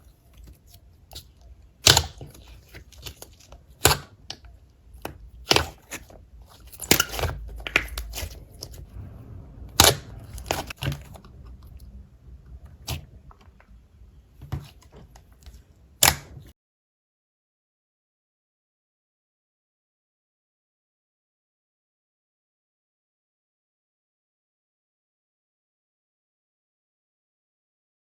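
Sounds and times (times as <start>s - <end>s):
slime squishing and crackling: 0.1s - 16.5s
sharp slime pops: 1.8s - 2.4s, 3.8s - 4.4s, 9.8s - 11.3s, 16.0s - 16.5s.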